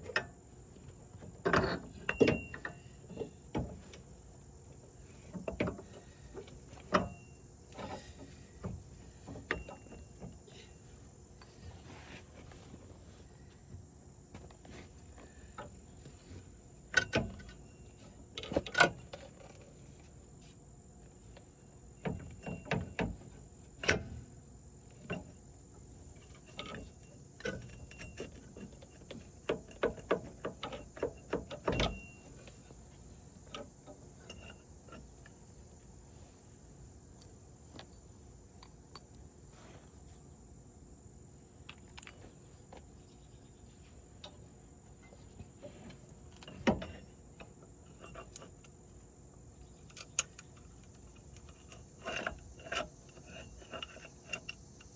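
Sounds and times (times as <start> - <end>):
hand tools and metal parts clinking: 0.0 - 4.1, 5.2 - 12.7, 21.2 - 24.3, 26.0 - 35.4, 44.2 - 49.1, 49.8 - 54.9
crickets chirring: 0.0 - 54.9.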